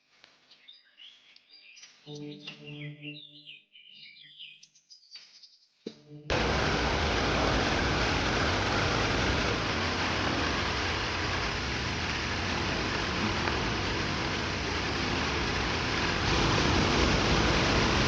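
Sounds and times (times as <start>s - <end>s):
faint bird chirps: 0.4s - 5.8s
waterfall roaring: 6.3s - 18.0s.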